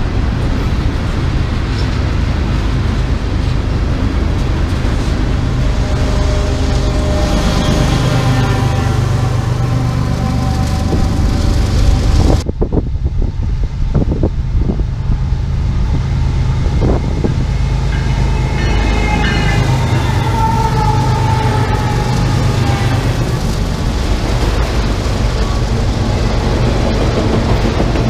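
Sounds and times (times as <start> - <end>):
diesel locomotive rumble: 0.0 - 28.0
train wheels clacking on rails: 16.8 - 28.0.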